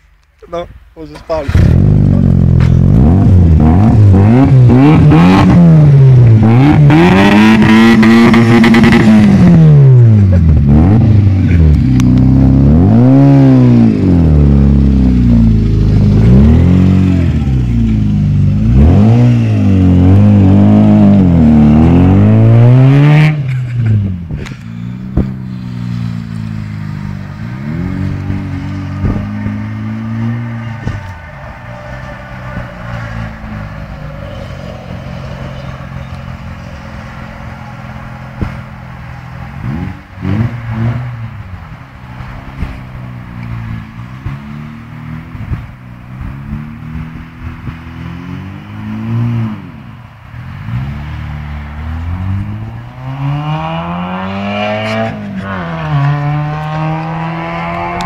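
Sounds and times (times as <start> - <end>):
car engine revving: 1.2 - 58.0
car engine idling: 23.5 - 39.6.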